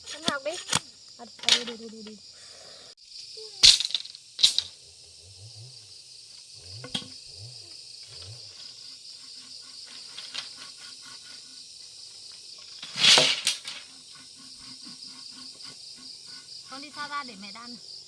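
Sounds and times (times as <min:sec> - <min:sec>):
crickets chirping: 0:00.0 - 0:18.0
sharp click: 0:00.1 - 0:01.7.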